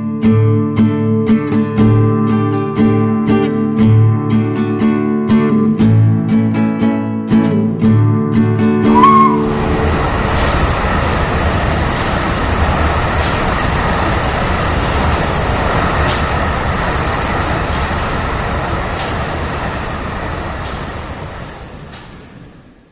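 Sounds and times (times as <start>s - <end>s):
train rumbling on track: 8.6s - 22.9s
rail click: 8.8s - 22.9s.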